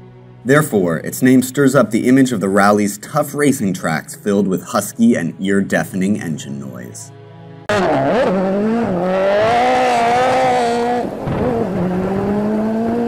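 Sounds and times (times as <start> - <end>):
car engine accelerating: 7.7 - 13.0.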